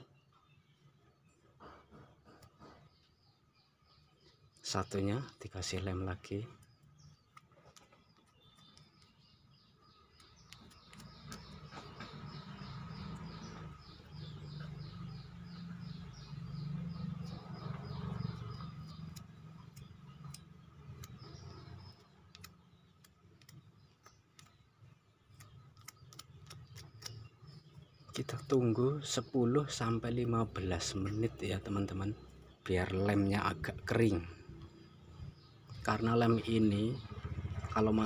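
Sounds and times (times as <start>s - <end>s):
small bird chirping: 0.0s - 38.0s
faint clicks: 18.9s - 24.6s.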